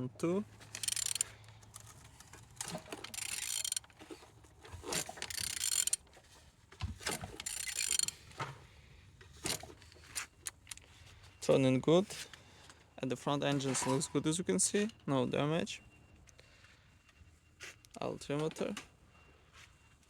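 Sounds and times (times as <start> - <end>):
engine turned over by hand: 0.5 - 8.4
mechanical clicking and scraping: 0.5 - 8.4, 9.4 - 10.9.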